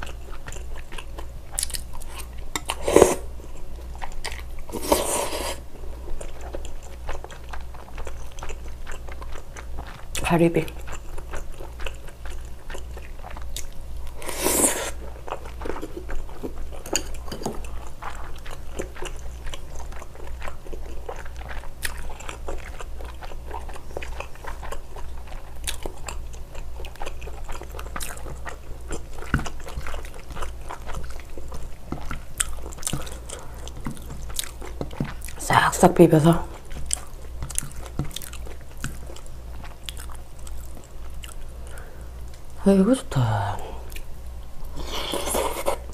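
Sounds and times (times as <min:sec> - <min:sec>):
person chewing with wet mouth smacks: 0:00.0 - 0:05.4, 0:10.8 - 0:35.4, 0:36.4 - 0:42.5
low steady hum: 0:00.0 - 0:45.9.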